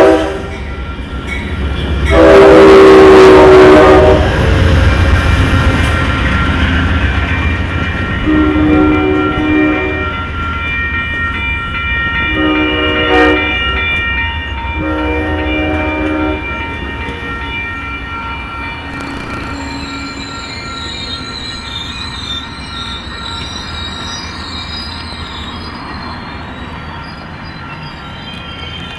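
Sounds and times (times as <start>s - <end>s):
train horn blasts: 0.0s - 0.6s, 2.1s - 4.9s, 8.2s - 10.2s, 12.3s - 13.8s, 14.8s - 16.7s
train rumble: 0.0s - 28.9s
wheels squealing: 18.9s - 28.9s.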